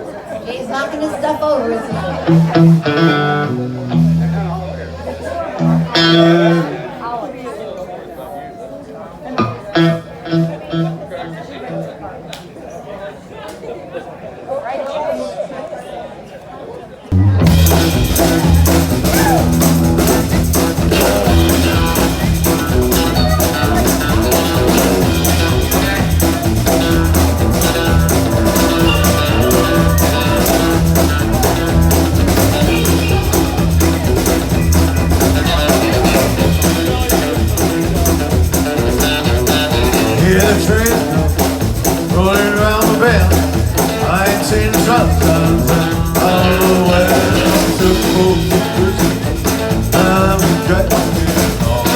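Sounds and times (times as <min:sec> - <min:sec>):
live band music: 0:01.9 - 0:07.0, 0:09.4 - 0:11.9, 0:17.1 - 0:51.9
person singing: 0:20.9 - 0:37.1, 0:39.7 - 0:51.9.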